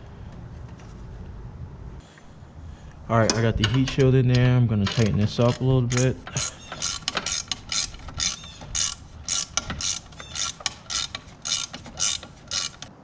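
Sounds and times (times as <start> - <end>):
ratchet wrench clicking: 3.3 - 12.9.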